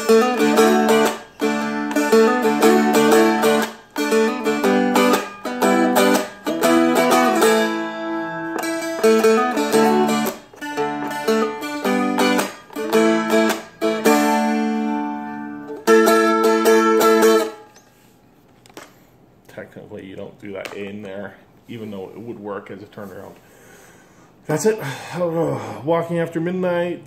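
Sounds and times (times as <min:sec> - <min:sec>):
strummed dulcimer chords: 0:00.0 - 0:17.6.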